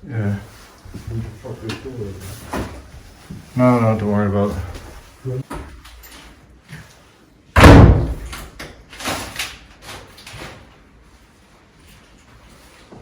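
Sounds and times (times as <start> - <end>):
door slamming shut: 7.6 - 9.4.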